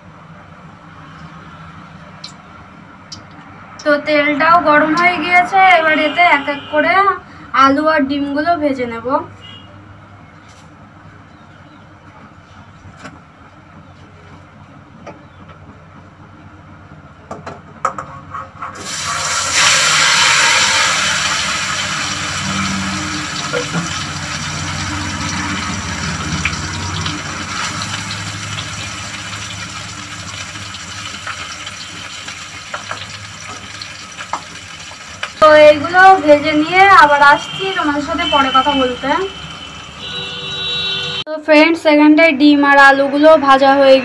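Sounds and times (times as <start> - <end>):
food sizzling in hot oil: 18.8 - 40.0.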